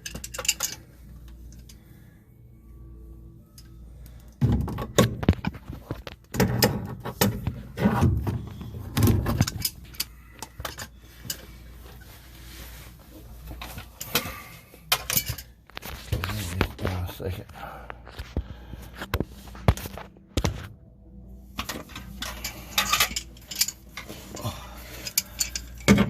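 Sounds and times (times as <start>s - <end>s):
metal tools clinking and knocking: 0.0s - 1.8s, 9.1s - 11.5s, 13.5s - 15.6s, 21.6s - 26.0s.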